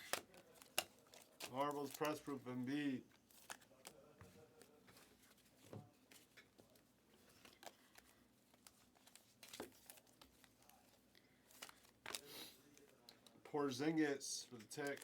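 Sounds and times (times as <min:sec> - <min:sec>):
rustling of cards and wrappers: 0:00.0 - 0:15.0.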